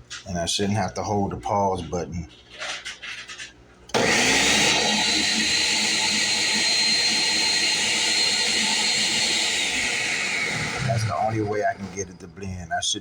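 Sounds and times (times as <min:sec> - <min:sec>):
blender motor whining: 0:03.9 - 0:12.2.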